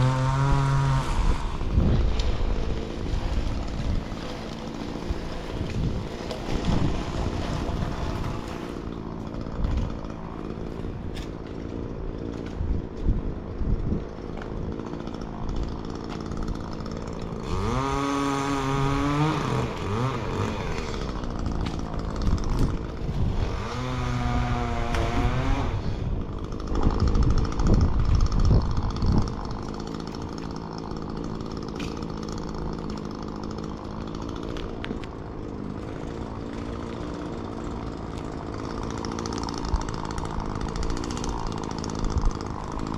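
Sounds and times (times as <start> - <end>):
chainsaw engine revving: 0.0 - 42.9.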